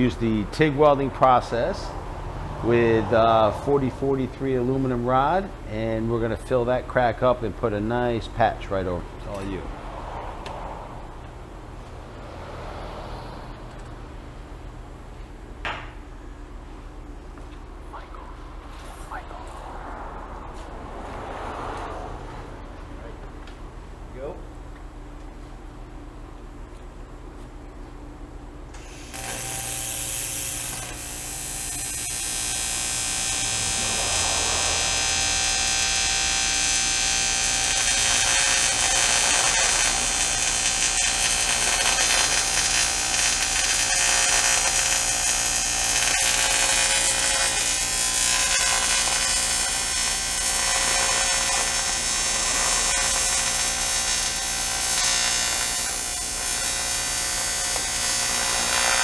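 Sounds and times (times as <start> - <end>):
welding arc buzzing: 28.7 - 59.0.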